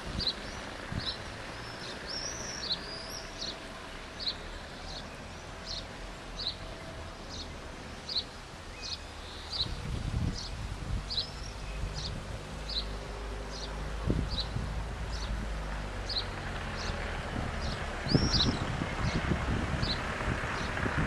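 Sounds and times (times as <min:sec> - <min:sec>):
outdoor hiss and rumble: 0:00.0 - 0:21.0
small bird chirping: 0:17.6 - 0:19.2.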